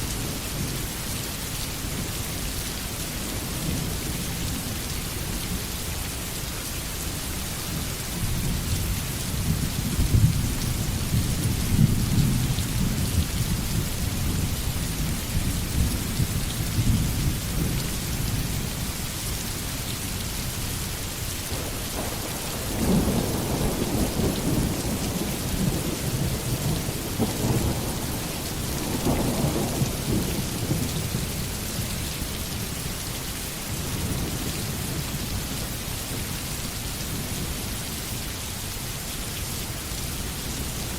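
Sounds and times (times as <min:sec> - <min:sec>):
heavy rain hissing: 0:00.0 - 0:40.9
thunder rumbling: 0:21.5 - 0:31.7.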